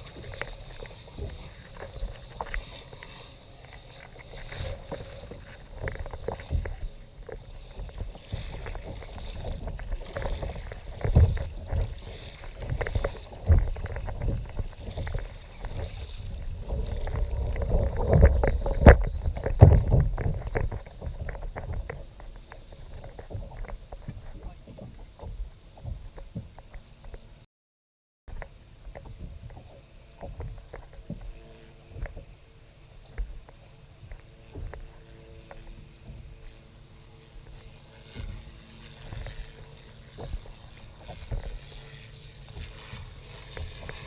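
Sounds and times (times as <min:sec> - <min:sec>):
water lapping: 0:00.0 - 0:27.1.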